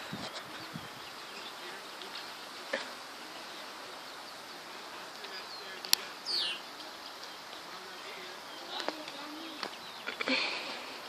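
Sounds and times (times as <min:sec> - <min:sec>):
soft outdoor hiss: 0:00.0 - 0:11.0
faint high chirps: 0:05.2 - 0:10.4.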